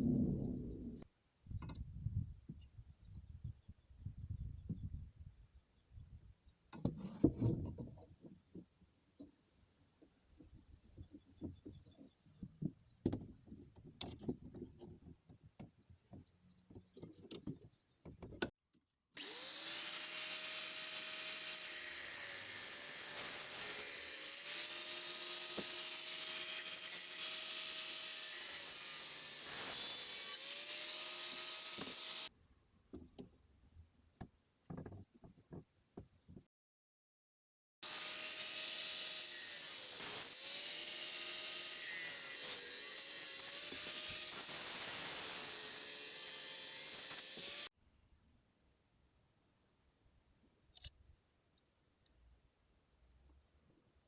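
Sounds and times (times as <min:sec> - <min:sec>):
angle grinder whining: 0:19.2 - 0:22.4, 0:37.8 - 0:47.7.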